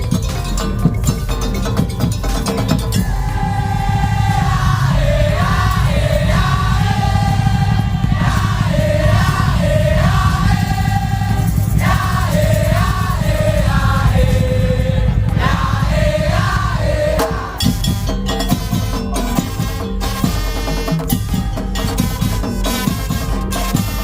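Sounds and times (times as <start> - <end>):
heavy drumming: 0.0 - 24.0.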